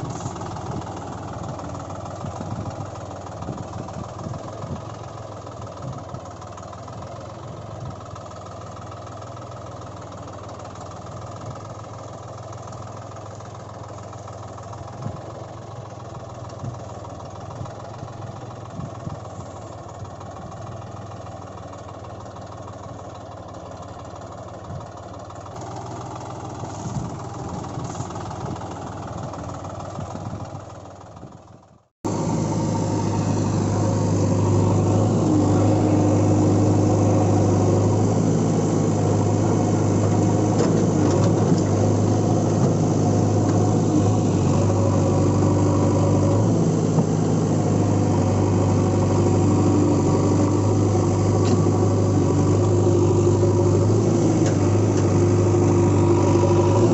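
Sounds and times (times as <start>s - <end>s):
loud engine humming: 0.0s - 8.3s, 25.5s - 30.7s, 32.0s - 56.9s
engine running: 0.0s - 56.9s.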